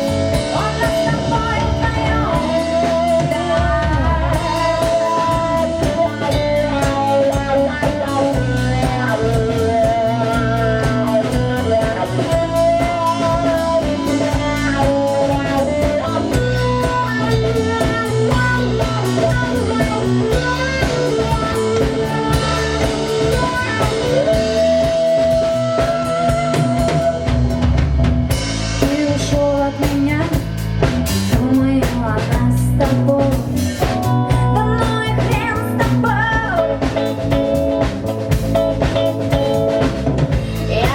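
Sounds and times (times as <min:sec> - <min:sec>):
wavering lead melody notes: 0:00.0 - 0:29.2
live blues-rock band playing: 0:00.0 - 0:40.9.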